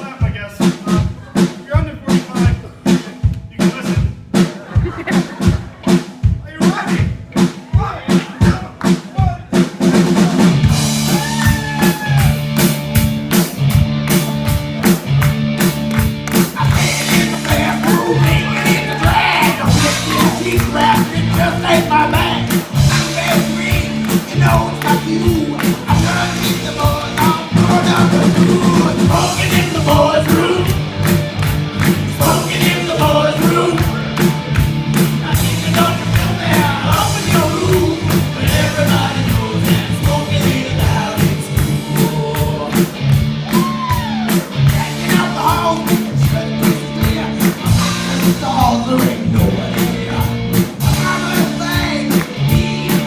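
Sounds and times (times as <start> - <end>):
drum kit beat: 0.0 - 53.0
live rock band playing: 0.0 - 53.0
person singing: 16.4 - 30.8, 32.0 - 34.1, 35.2 - 53.0.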